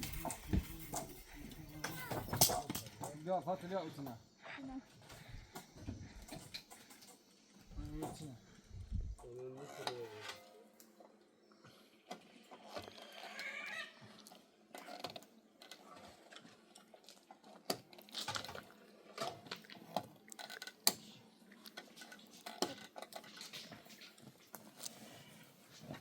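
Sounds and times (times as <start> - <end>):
metal pots and dishes clinking: 0.0 - 3.2.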